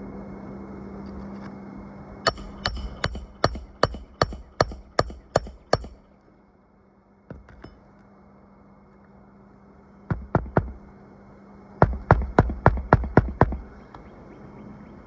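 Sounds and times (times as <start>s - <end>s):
hammer blows on roofing nails: 2.3s - 6.1s, 10.1s - 10.9s, 11.8s - 13.7s.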